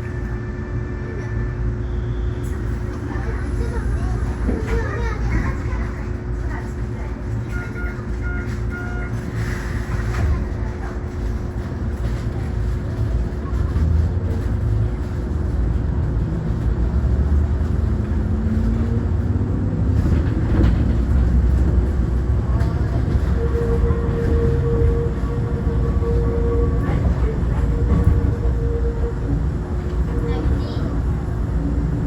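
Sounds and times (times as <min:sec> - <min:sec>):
train wheels rumbling: 0:00.0 - 0:32.0.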